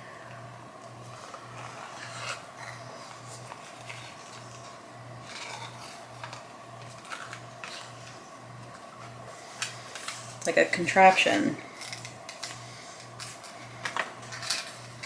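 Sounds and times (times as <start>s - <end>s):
packaging rubbing and clicking: 1.2s - 10.4s.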